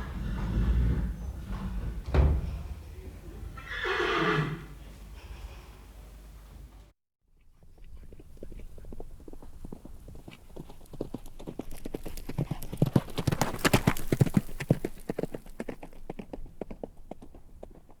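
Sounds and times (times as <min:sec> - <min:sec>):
horse hooves clip-clopping: 0:07.4 - 0:18.0.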